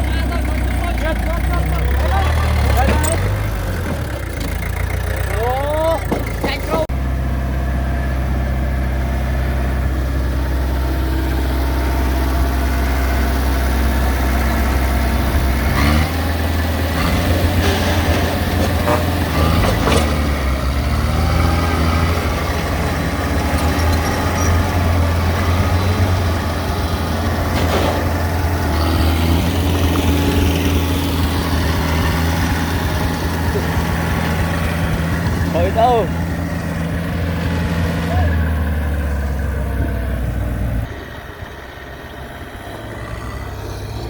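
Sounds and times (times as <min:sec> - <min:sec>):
heavy diesel engine running: 0:00.0 - 0:44.0
short knocks: 0:06.0 - 0:06.9.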